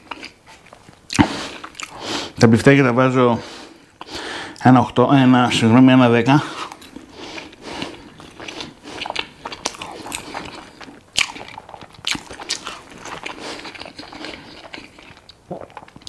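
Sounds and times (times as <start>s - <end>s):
man chewing food: 0.0s - 2.4s, 3.4s - 4.6s, 6.5s - 16.0s.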